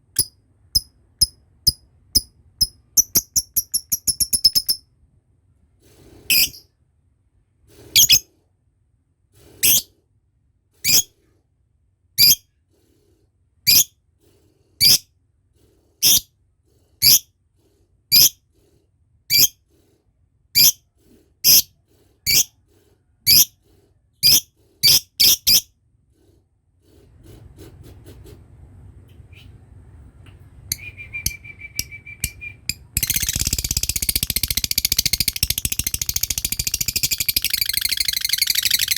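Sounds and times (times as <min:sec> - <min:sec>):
bird high-pitched calls: 0:33.0 - 0:38.9.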